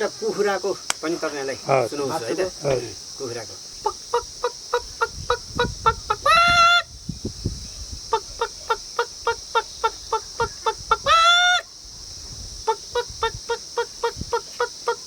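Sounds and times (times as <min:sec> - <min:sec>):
drawn-out squawk: 0:03.7 - 0:06.9, 0:08.1 - 0:11.7, 0:12.6 - 0:15.0
man imitating chicken clucks: 0:03.8 - 0:06.8, 0:12.7 - 0:15.0.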